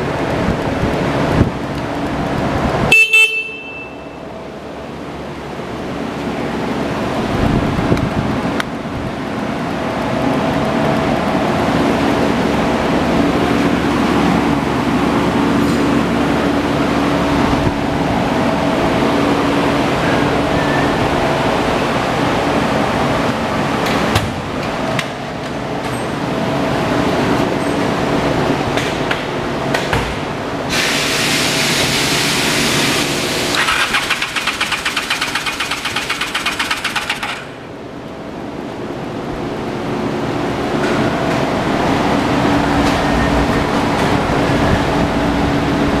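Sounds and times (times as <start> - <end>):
motorcycle engine running: 33.6 - 37.8.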